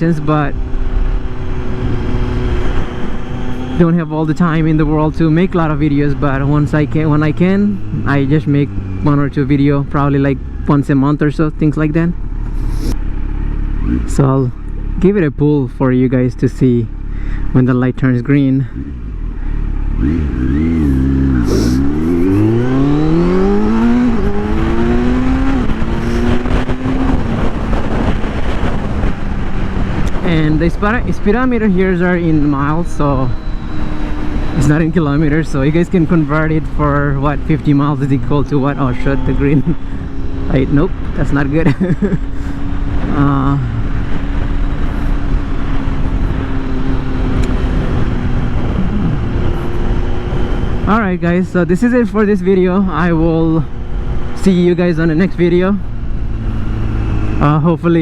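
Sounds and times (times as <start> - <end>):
motorcycle engine accelerating: 0.0 - 58.0
wind noise: 19.8 - 58.0.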